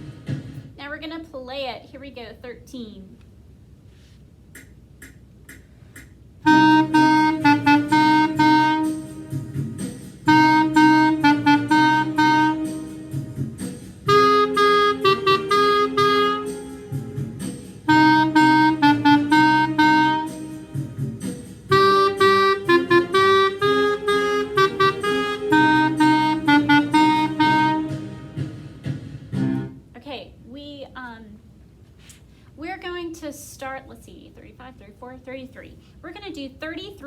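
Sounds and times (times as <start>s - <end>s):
clarinet playing blues melody: 6.4s - 9.5s, 10.2s - 13.2s, 14.0s - 17.2s, 17.8s - 20.8s, 21.7s - 28.4s.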